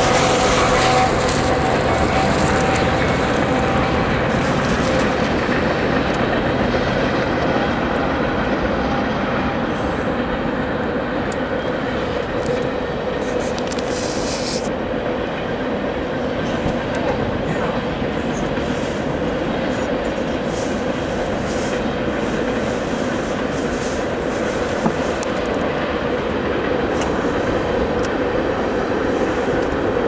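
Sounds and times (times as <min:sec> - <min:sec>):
diesel locomotives running: 0:00.0 - 0:30.0
train cars rolling on rails: 0:00.0 - 0:30.0.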